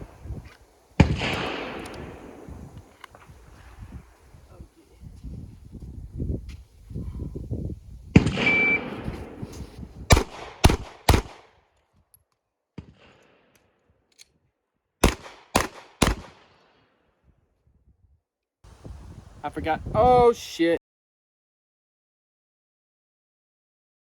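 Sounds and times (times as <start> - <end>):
pistol shots: 1.0 - 3.0, 8.2 - 9.5, 10.1 - 11.5, 15.0 - 16.6
shot timer beep: 8.4 - 9.0.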